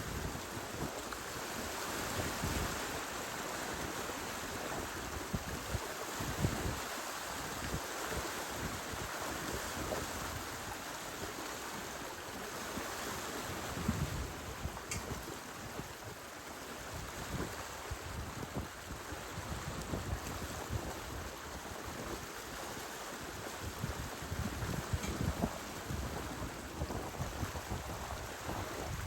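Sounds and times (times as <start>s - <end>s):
water rushing along hulls: 0.0s - 29.0s
wind buffeting microphone: 13.4s - 16.2s, 17.0s - 22.3s, 23.4s - 29.0s.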